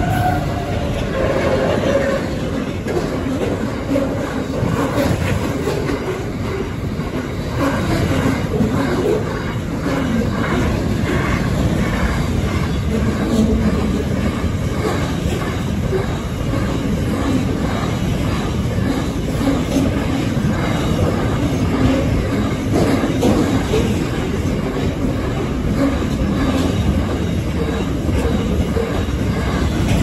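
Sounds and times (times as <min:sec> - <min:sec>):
freight train wheels rumbling and clicking: 0:00.0 - 0:30.0.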